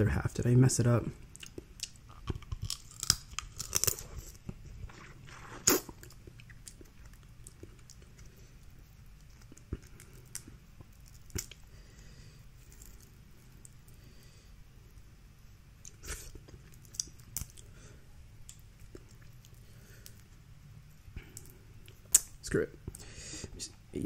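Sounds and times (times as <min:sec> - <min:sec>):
chewing: 0:01.3 - 0:12.0, 0:18.4 - 0:20.3
crab shells cracking: 0:01.4 - 0:04.2.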